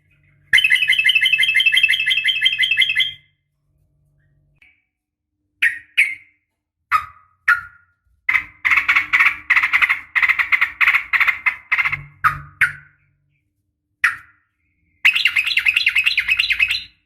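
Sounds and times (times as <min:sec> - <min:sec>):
bulbul calling: 0:00.2 - 0:03.3, 0:15.0 - 0:17.0.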